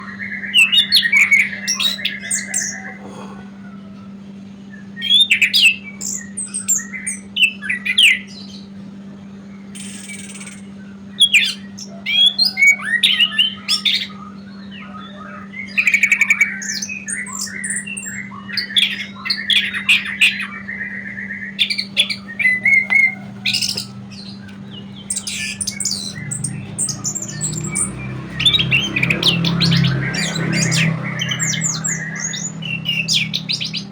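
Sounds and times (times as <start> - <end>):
steady low hum: 21.5 - 33.9
bird scratchy chirps and squawks: 21.6 - 33.9.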